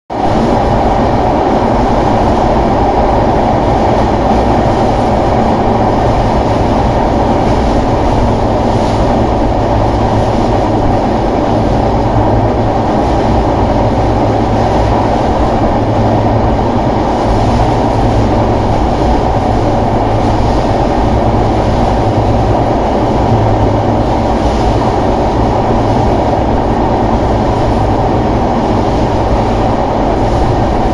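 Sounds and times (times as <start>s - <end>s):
train wheels rumbling on rails: 0.1s - 30.9s.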